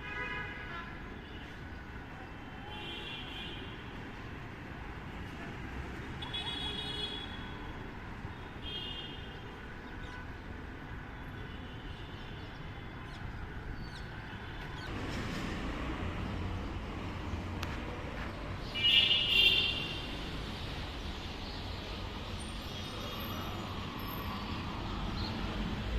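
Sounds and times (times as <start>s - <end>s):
city traffic noise: 0.0s - 25.9s.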